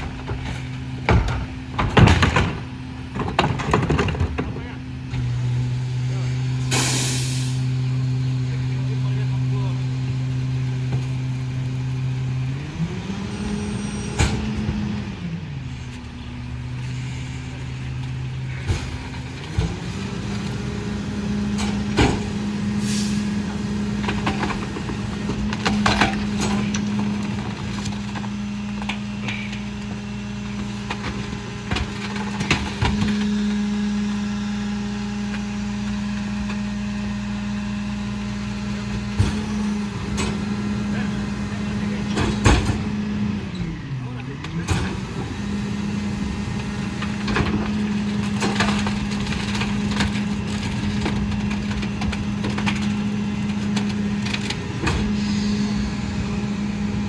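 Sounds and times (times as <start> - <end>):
metal clanks and bangs: 0.0 - 4.8, 21.4 - 33.4
garbage truck diesel engine revving: 0.0 - 57.0.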